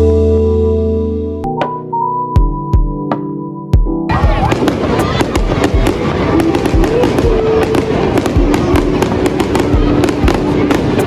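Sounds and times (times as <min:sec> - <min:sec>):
fireworks crackling and popping: 0:04.1 - 0:11.0
fireworks deep booms: 0:04.1 - 0:11.0.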